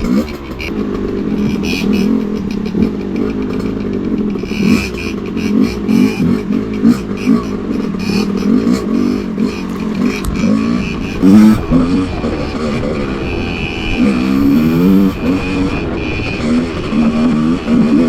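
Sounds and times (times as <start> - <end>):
rattling clicks: 0.0 - 11.4
dirt bike engine revving: 0.0 - 18.0.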